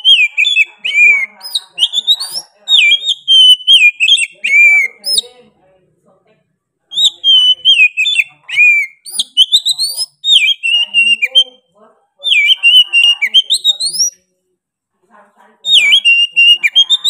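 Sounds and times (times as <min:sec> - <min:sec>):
bird singing whistled phrases: 0:00.0 - 0:05.3, 0:06.9 - 0:11.5, 0:12.2 - 0:14.2, 0:15.7 - 0:17.0.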